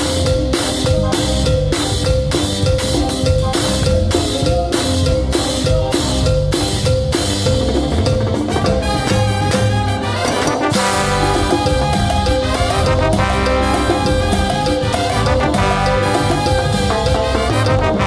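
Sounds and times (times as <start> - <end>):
latin band playing: 0.0 - 18.0
timbales and drums beating: 0.0 - 18.0.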